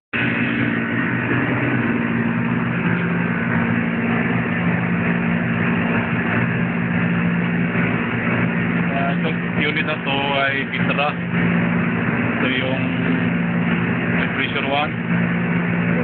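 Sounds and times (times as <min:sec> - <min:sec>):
air conditioner humming: 0:00.2 - 0:16.0.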